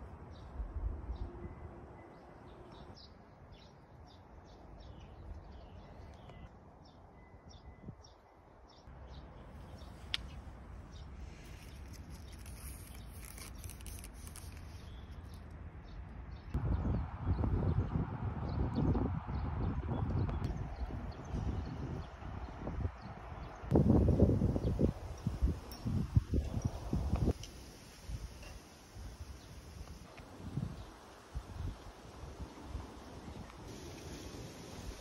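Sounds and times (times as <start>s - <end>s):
small birds chirping: 1.2s - 16.6s.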